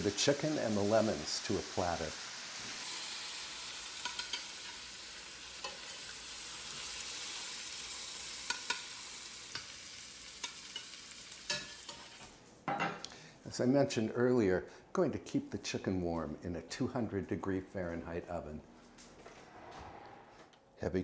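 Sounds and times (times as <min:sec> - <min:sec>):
oil sizzling in a skillet: 0:00.0 - 0:12.4.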